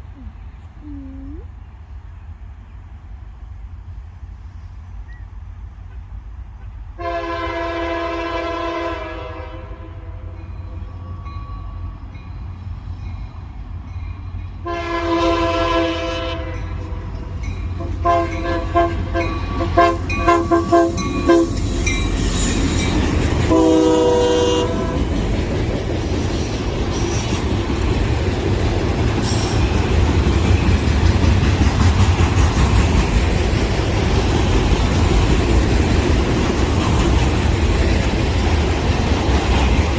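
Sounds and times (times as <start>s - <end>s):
train rumble and wheel noise: 0.0s - 39.9s
locomotive air horn blasts: 7.0s - 10.3s, 14.6s - 17.0s, 17.8s - 22.5s, 23.5s - 25.0s.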